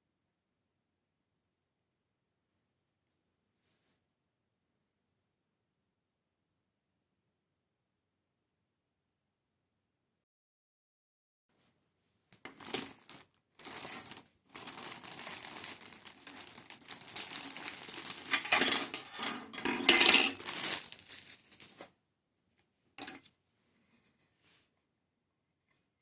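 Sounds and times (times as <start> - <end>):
packaging crinkling and rustling: 12.4 - 21.9
small parts clinking: 15.6 - 21.1.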